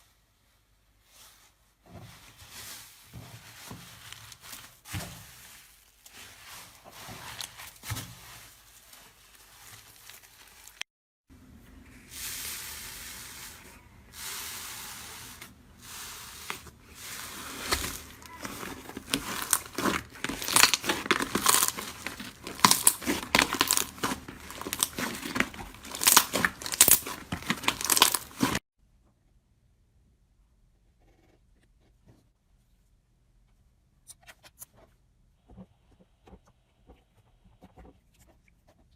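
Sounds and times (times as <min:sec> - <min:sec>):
crunchy material tearing and crackling: 0:04.1 - 0:10.8, 0:16.8 - 0:28.6.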